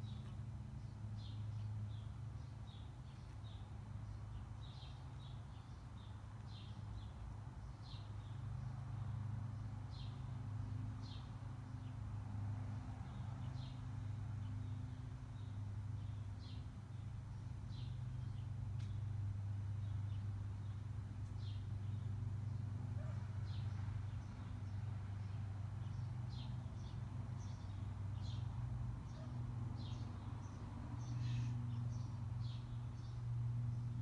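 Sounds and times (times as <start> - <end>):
bird chirping: 13.0 - 19.0, 19.8 - 34.0.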